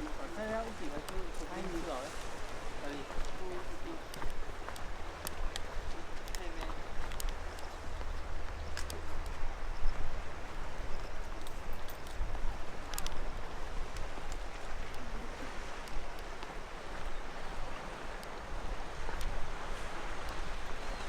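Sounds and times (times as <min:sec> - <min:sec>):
wind rumble on microphone: 0:00.0 - 0:21.0
faint clicks: 0:04.0 - 0:09.4, 0:11.0 - 0:15.1.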